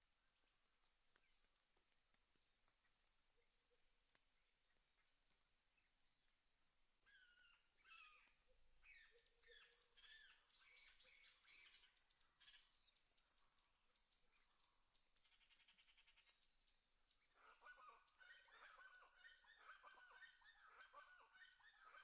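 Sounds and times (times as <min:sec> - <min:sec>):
bird chirps: 0:07.1 - 0:16.4, 0:17.2 - 0:22.0.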